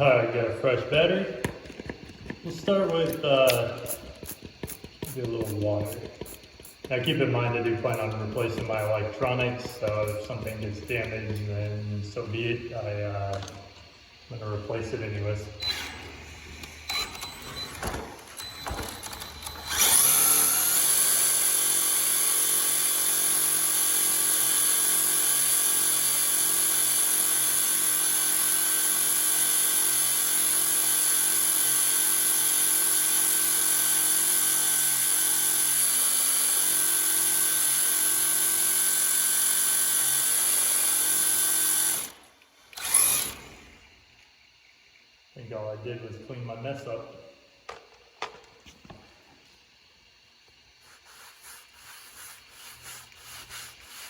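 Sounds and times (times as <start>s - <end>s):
electric motor high whine: 18.4s - 24.7s, 39.4s - 43.9s.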